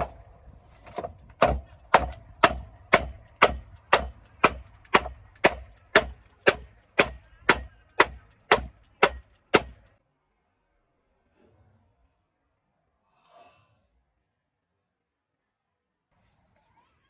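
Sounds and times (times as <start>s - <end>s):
blade chopping wood: 0.8s - 9.8s.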